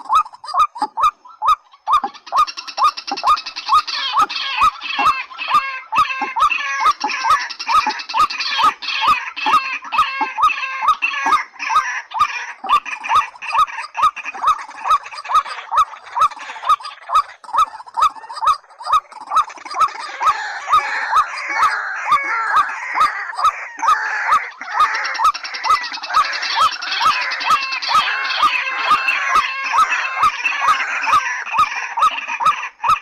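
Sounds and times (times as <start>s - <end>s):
harsh chorus of bird calls: 0.0s - 33.0s
waterhen calls with sharp clicks: 0.0s - 33.0s.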